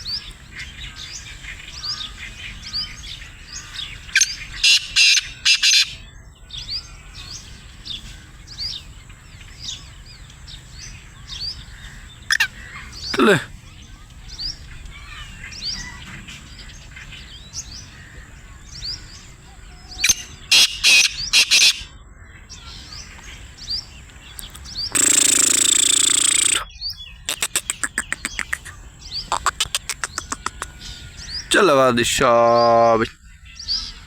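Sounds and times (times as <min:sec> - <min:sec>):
faint small birds chirping: 0:00.0 - 0:34.0
sharp clicks: 0:24.4 - 0:26.6, 0:27.3 - 0:28.7, 0:29.3 - 0:30.7
burst of noise: 0:24.9 - 0:26.7
francolin calling harsh notes: 0:24.9 - 0:26.7, 0:27.3 - 0:33.1.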